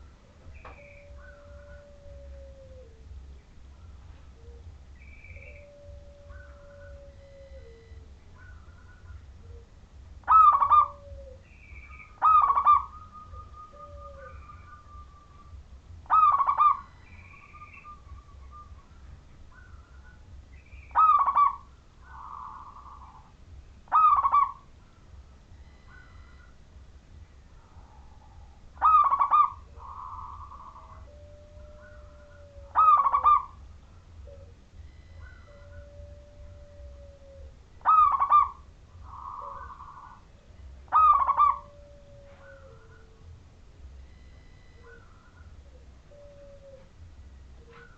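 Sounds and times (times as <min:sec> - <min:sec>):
dove cooing: 0:00.0 - 0:26.6, 0:27.5 - 0:43.4, 0:44.0 - 0:47.9
faint whistled tones: 0:05.0 - 0:09.1, 0:25.5 - 0:26.5, 0:34.4 - 0:36.9, 0:44.0 - 0:46.9.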